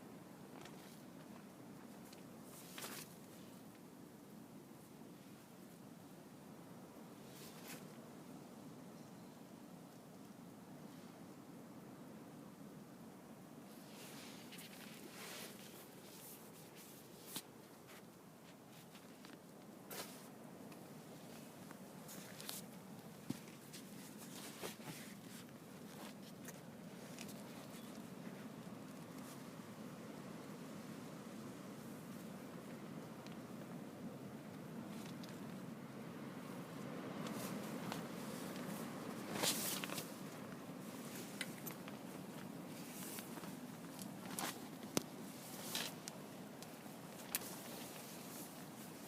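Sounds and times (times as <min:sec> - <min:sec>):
low background noise: 0:00.0 - 0:49.0
low steady background noise: 0:00.0 - 0:49.0
faint rustling: 0:00.4 - 0:03.9, 0:07.2 - 0:08.1, 0:13.7 - 0:49.0.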